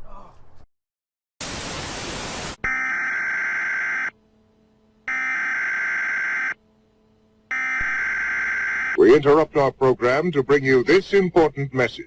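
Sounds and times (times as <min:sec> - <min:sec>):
buzzy electronic beep tone: 0:07.5 - 0:09.0.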